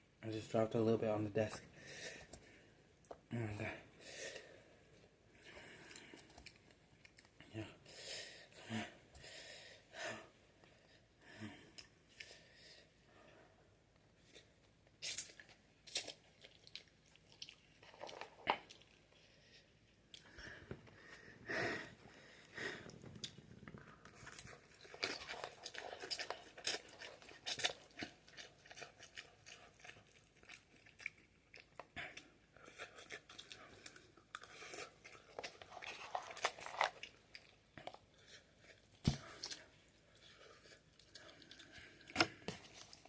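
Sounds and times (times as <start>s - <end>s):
person chewing noodles: 4.0s - 7.4s, 14.2s - 43.0s.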